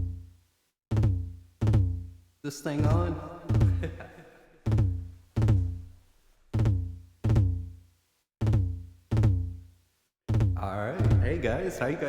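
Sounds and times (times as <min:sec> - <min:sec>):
booming drum machine bass hits: 0:00.9 - 0:02.2, 0:02.8 - 0:04.0, 0:04.7 - 0:05.9, 0:06.6 - 0:07.7, 0:08.4 - 0:09.6, 0:10.3 - 0:11.6.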